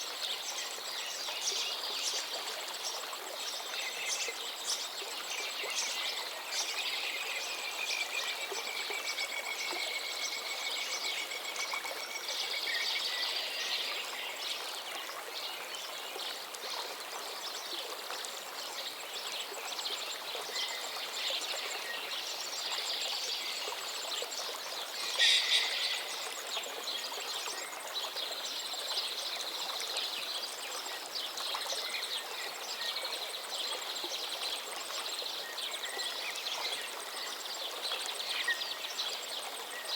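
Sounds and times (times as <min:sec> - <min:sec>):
stream water running: 0:00.0 - 0:39.9
birds singing and calling: 0:25.0 - 0:26.4.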